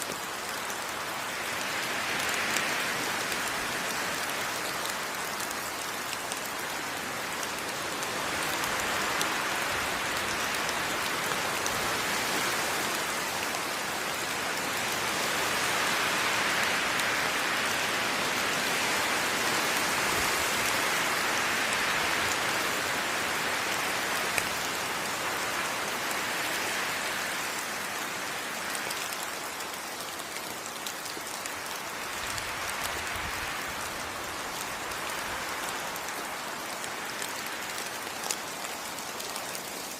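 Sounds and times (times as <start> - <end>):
rain pattering on leaves: 0.0 - 39.9.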